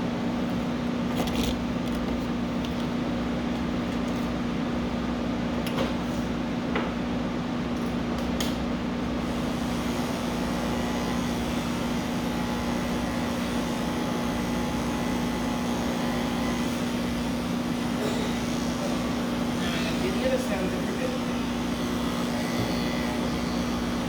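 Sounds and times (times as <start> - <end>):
electric clippers humming: 9.2 - 24.0.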